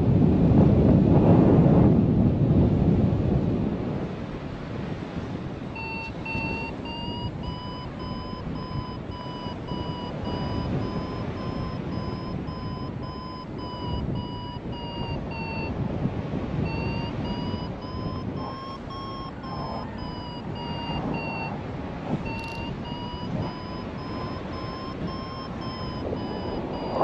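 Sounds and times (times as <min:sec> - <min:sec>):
wind rumble on microphone: 0:00.0 - 0:27.0
variometer beeping: 0:05.7 - 0:27.0.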